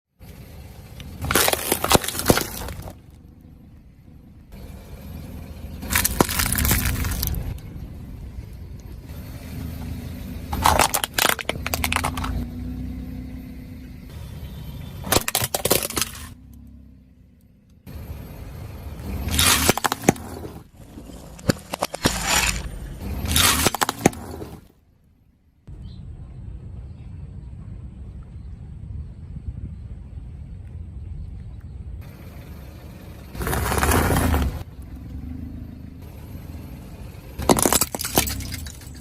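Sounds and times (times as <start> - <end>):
car engine and tyres rumbling: 0.0 - 39.0
tyres crunching brittle objects: 0.9 - 3.2, 5.8 - 7.6, 10.5 - 12.5, 15.0 - 16.4, 19.0 - 24.7, 37.4 - 39.0.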